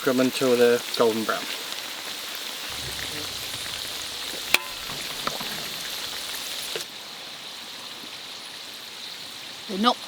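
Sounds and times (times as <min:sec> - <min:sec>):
chips sizzling in hot oil: 0:02.7 - 0:06.9.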